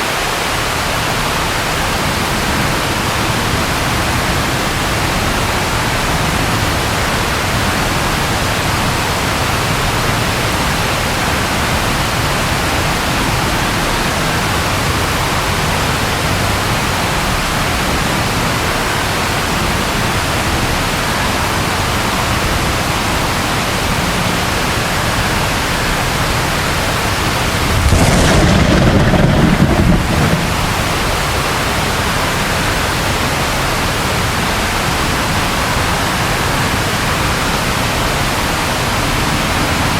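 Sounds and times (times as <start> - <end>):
rain: 0.0 - 39.9
low thunder rumble: 27.4 - 31.4.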